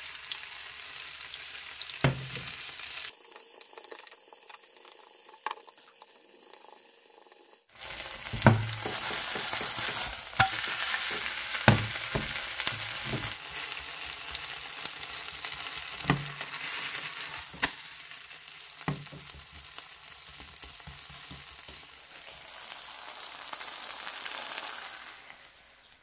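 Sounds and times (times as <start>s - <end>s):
pancake sizzling in oil: 0.0s - 26.0s
wooden spatula knocking on pan: 2.0s - 2.4s, 8.2s - 13.4s, 18.9s - 19.6s.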